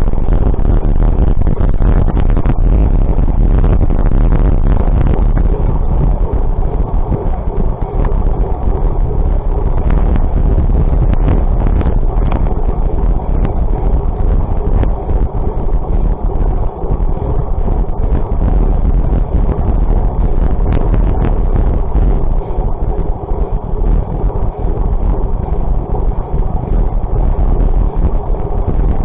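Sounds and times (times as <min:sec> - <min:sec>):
low rumble of travel: 0:00.0 - 0:29.0
wind buffeting microphone: 0:00.0 - 0:29.0.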